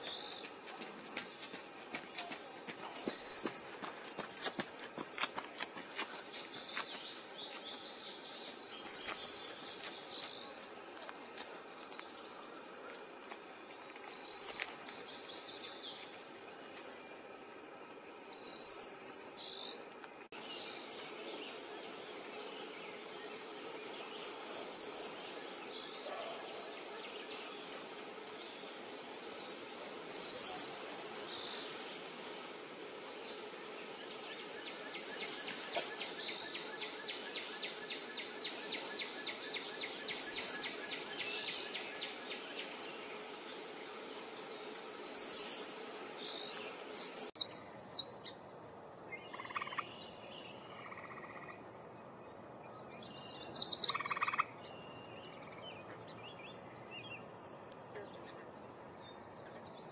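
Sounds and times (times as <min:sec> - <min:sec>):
bird singing: 0:02.8 - 0:04.0, 0:11.9 - 0:16.1, 0:16.7 - 0:31.8, 0:33.3 - 0:59.9.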